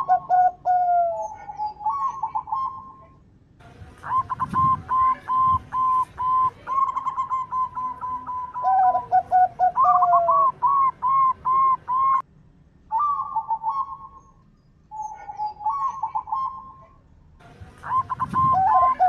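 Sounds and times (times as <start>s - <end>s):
doves cooing: 0.0s - 3.1s, 4.0s - 12.2s, 17.8s - 19.0s
lower series of bird notes: 0.0s - 19.0s.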